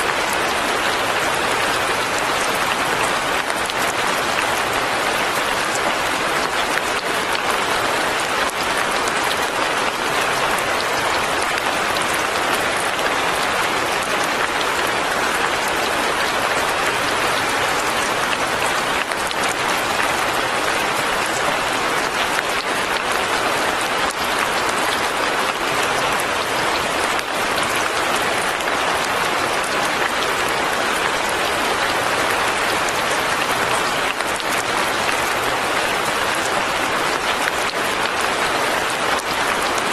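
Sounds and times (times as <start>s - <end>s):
light rain on roof and leaves: 0.0s - 39.9s.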